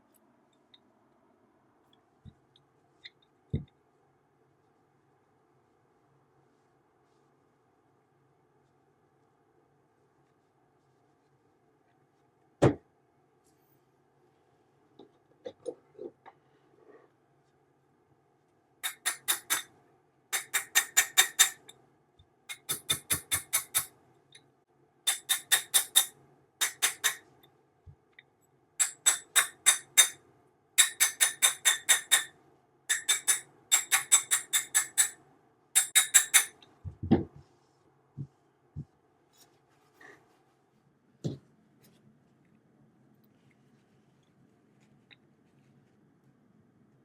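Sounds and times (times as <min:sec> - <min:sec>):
metallic ratchet clicking: 0:18.8 - 0:19.7, 0:32.9 - 0:35.2, 0:35.8 - 0:36.6.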